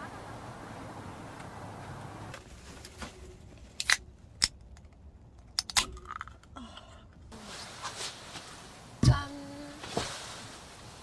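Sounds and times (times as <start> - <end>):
small objects clicking and snapping: 3.8 - 6.6.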